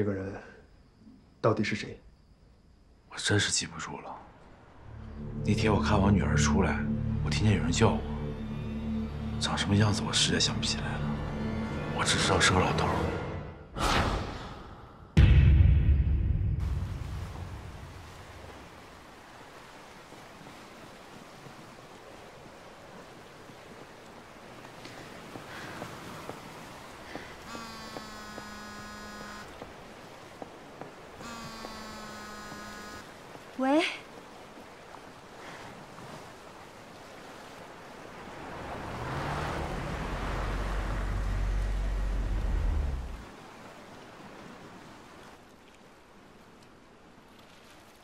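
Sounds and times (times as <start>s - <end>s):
low rumbling swell: 38.3s - 43.3s.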